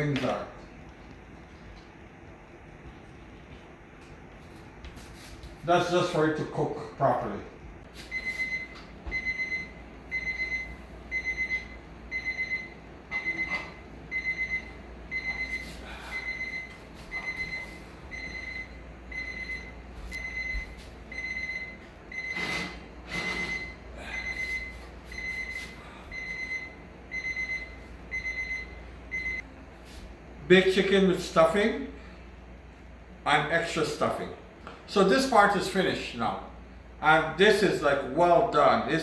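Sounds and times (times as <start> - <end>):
kitchen timer beeping: 8.1 - 22.4, 23.4 - 29.4.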